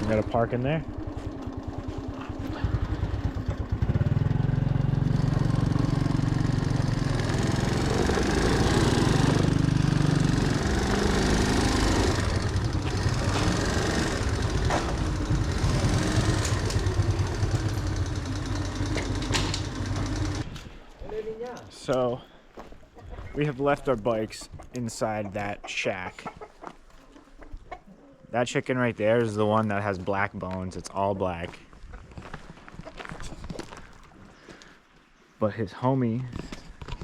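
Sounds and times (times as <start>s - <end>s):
small motorbike engine revving: 0.0s - 20.5s.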